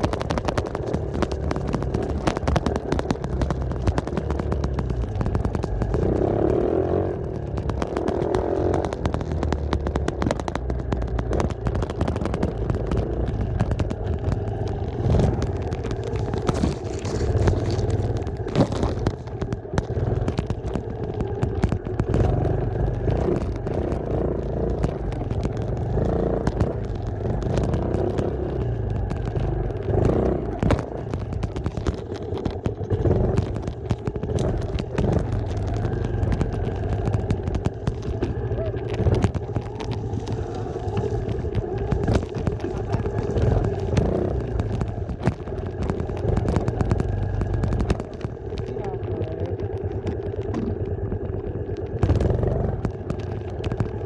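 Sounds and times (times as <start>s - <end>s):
dirt bike engine revving: 1.4s - 20.3s, 21.9s - 31.7s.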